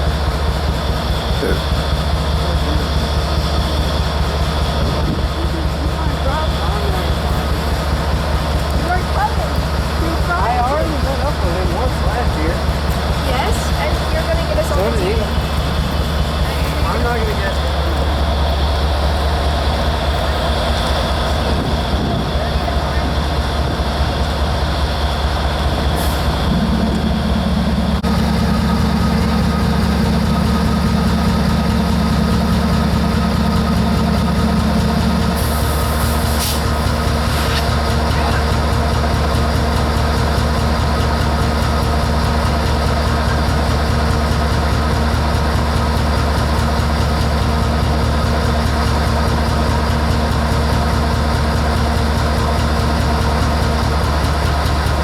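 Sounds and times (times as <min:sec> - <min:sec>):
diesel locomotive engine idling: 0:00.0 - 0:55.0.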